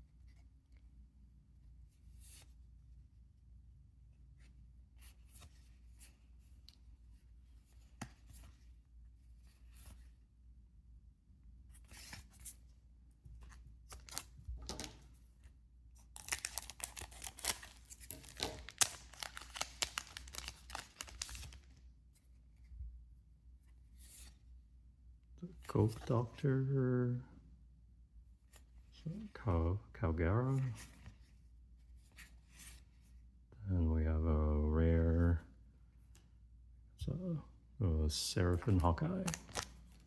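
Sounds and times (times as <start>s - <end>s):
trading cards rustling: 13.4s - 15.2s, 16.0s - 21.8s, 38.4s - 40.0s
foil pack tearing open: 16.2s - 21.6s, 39.2s - 39.7s.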